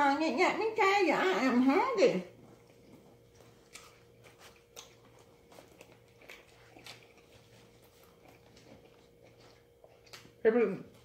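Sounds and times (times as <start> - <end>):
faint chewing: 2.2 - 11.0.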